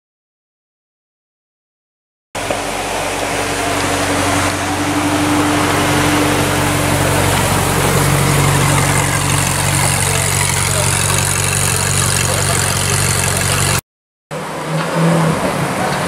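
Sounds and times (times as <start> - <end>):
car engine idling: 2.4 - 13.8
street noise: 2.4 - 16.0.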